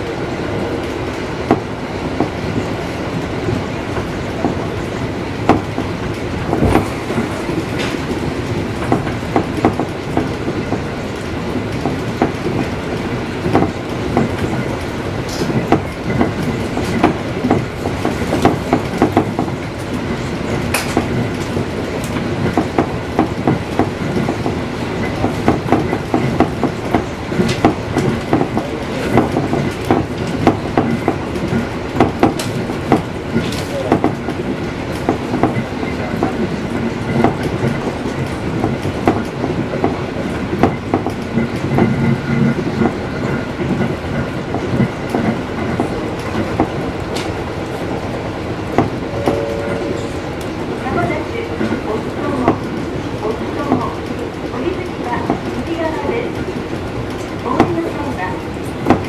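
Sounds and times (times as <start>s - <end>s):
train rumbling: 0.0s - 59.0s
wheels clicking over rail joints: 0.8s - 49.0s.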